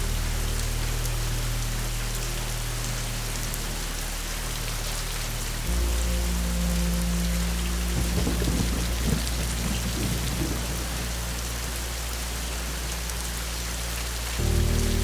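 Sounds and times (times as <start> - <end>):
steady rain: 0.0 - 15.0
low roll of thunder: 5.8 - 13.1.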